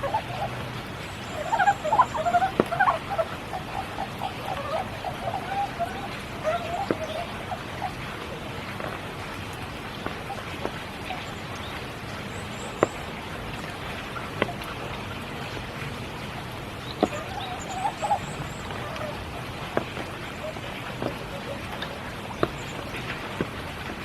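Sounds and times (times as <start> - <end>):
frog calls: 0.0 - 9.0, 16.8 - 23.5
heavy water drips: 0.0 - 24.0
steady rain falling: 0.0 - 24.0.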